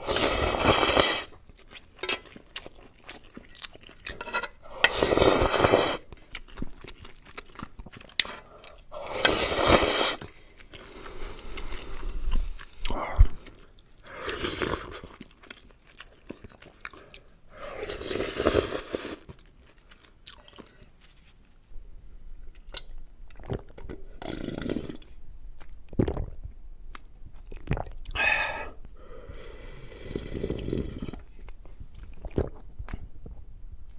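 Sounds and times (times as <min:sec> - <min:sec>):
noodle slurping: 0:00.0 - 0:01.4, 0:04.7 - 0:06.1, 0:09.0 - 0:13.0, 0:29.7 - 0:31.3
wet chewing: 0:06.1 - 0:09.4.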